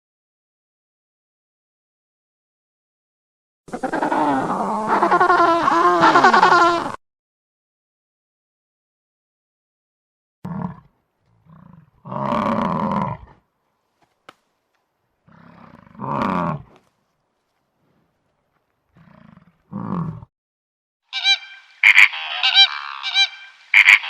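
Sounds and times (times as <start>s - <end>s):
animal roaring: 3.7s - 6.2s, 10.4s - 13.4s, 15.2s - 16.8s, 18.9s - 20.3s
animal grunt: 10.4s - 13.4s, 15.2s - 16.9s, 18.9s - 20.3s.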